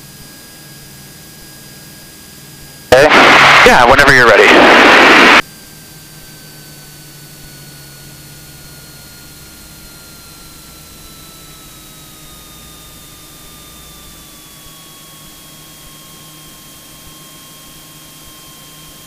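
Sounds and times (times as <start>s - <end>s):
cockpit audio hiss: 2.9s - 5.4s
faint falling whine: 2.9s - 5.4s.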